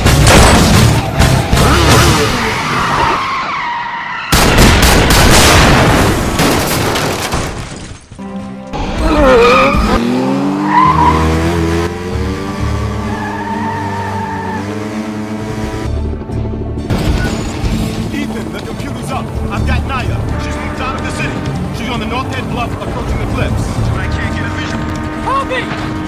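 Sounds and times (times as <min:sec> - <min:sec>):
action film music: 0:00.0 - 0:03.4, 0:08.2 - 0:26.0
engines revving: 0:00.0 - 0:03.4, 0:08.8 - 0:16.2, 0:17.5 - 0:26.0
tires skidding: 0:00.9 - 0:04.4, 0:08.8 - 0:15.9.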